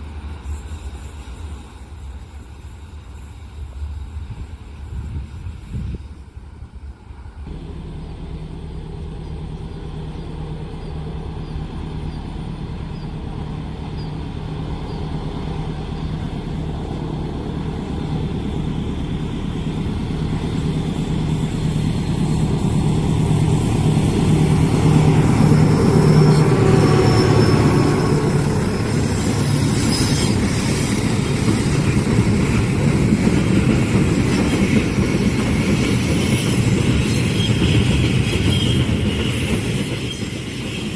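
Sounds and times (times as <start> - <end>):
train wheels clattering on rail: 0.0 - 40.9
diesel engine drone: 7.5 - 30.8
wheel squeal: 7.8 - 32.1, 35.6 - 40.9.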